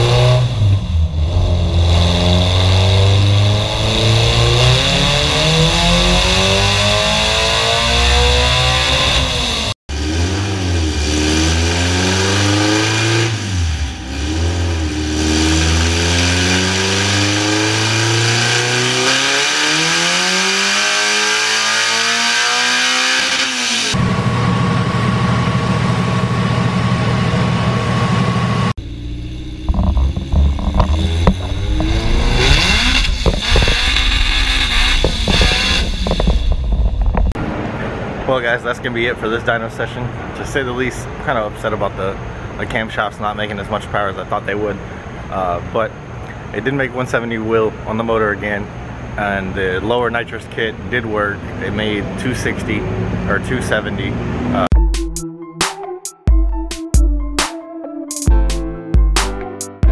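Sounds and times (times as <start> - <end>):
car engine revving on a dyno: 0.0 - 38.2.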